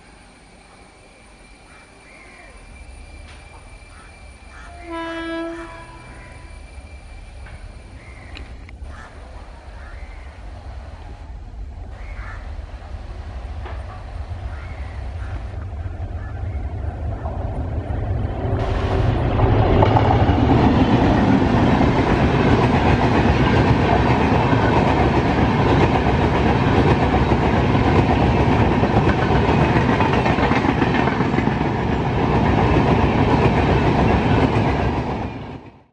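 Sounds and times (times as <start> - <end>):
train wheels rumbling on rails: 1.6 - 35.9
clickety-clack over rail joints: 13.6 - 16.2, 17.0 - 35.9.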